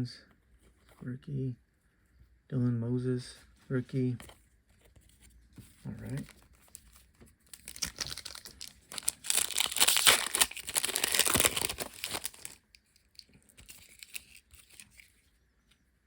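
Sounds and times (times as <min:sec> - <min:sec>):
wrapper tearing and crinkling: 0:07.4 - 0:15.0.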